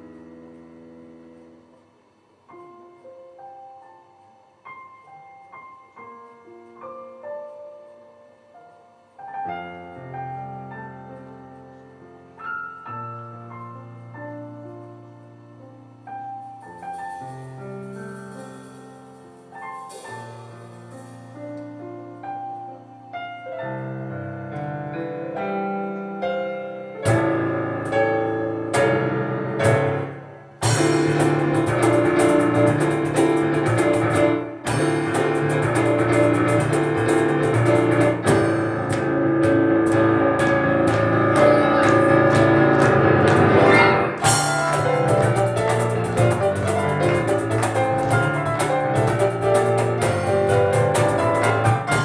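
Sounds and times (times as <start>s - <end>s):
acoustic piano playing: 0.0s - 52.0s
sharp percussion hits: 29.6s - 52.0s.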